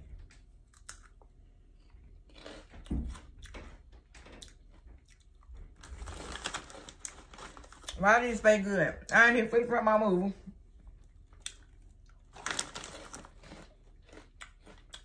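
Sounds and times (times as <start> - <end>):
corn puffs crunching: 5.6 - 8.3, 11.4 - 15.0
foil snack bag crinkling: 5.6 - 8.4, 12.2 - 14.8.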